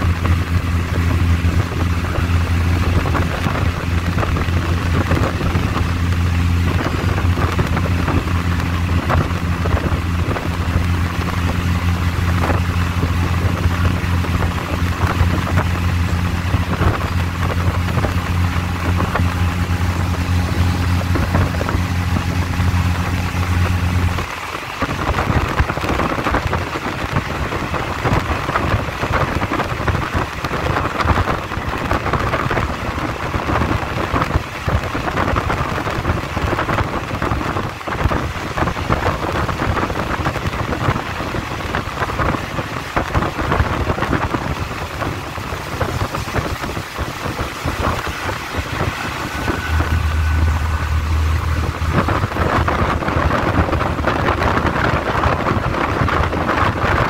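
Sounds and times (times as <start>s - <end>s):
low drone: 0.0s - 29.4s, 44.2s - 57.0s
train wheels and air rushing: 44.3s - 57.0s.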